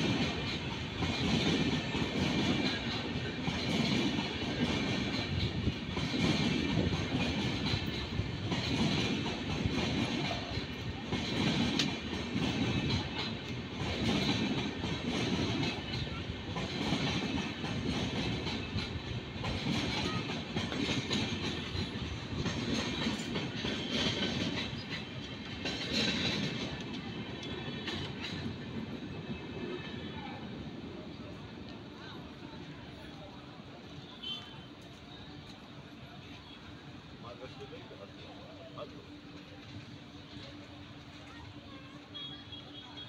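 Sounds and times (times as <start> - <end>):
train wheels clattering over joints: 0.0 - 30.2.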